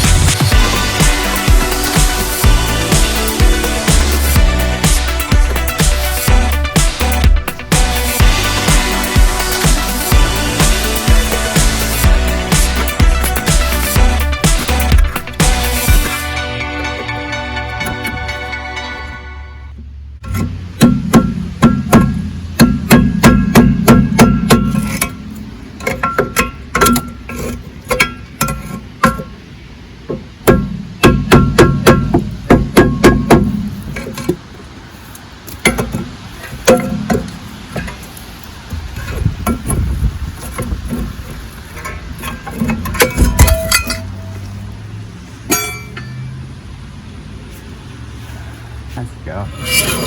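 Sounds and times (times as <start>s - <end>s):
hammer striking metal brake drum: 20.2s - 27.2s, 30.4s - 33.8s, 41.8s - 44.4s, 45.5s - 46.2s.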